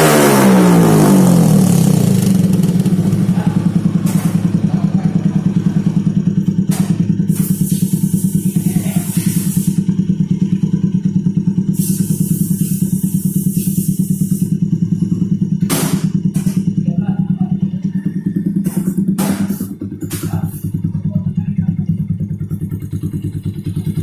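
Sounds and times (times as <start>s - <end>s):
motorcycle engine idling: 0.0s - 24.0s
sharp knocks: 6.7s - 7.4s, 15.6s - 16.7s, 18.6s - 20.4s.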